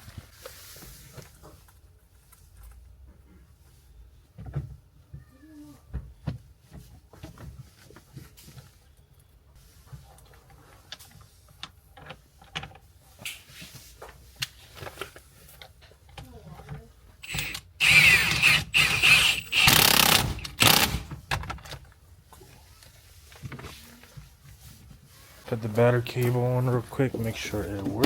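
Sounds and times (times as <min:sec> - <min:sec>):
parts clicking and knocking: 0:10.9 - 0:22.0
cordless power tool running: 0:17.2 - 0:21.1.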